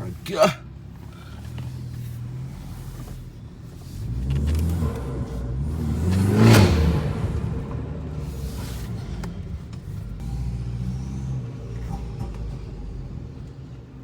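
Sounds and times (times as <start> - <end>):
car engine revving: 1.1 - 14.0.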